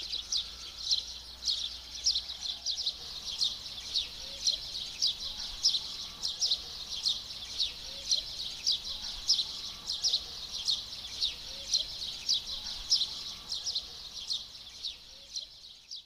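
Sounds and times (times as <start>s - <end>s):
steady high hiss: 0.0s - 2.0s
birds chirping: 0.0s - 16.0s.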